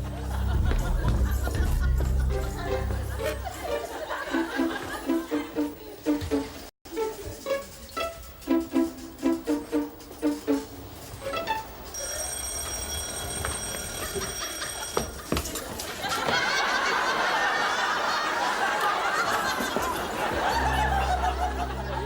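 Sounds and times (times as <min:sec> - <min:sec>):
studio audience laughing: 0:00.0 - 0:06.0, 0:15.8 - 0:22.0
low music: 0:00.0 - 0:11.9, 0:20.2 - 0:22.0
high ringing tone: 0:11.8 - 0:15.2.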